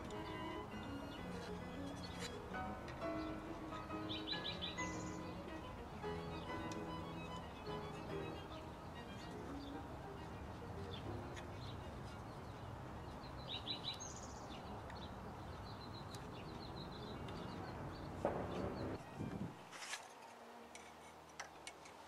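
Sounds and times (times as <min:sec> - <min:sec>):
outdoor background noise: 0:00.0 - 0:22.0
bird chirps: 0:03.0 - 0:05.4, 0:07.2 - 0:19.2.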